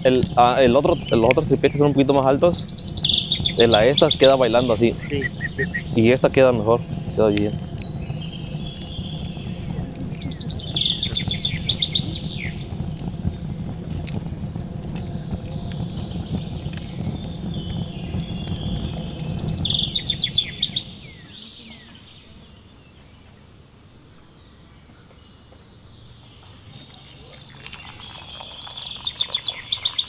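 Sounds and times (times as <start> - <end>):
songbird chirping: 0.0 - 30.0
low rushing noise: 0.6 - 22.6.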